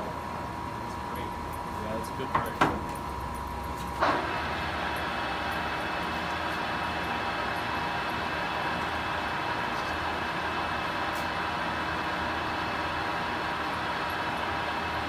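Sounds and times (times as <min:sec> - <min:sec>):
lathe running: 0:03.0 - 0:15.0.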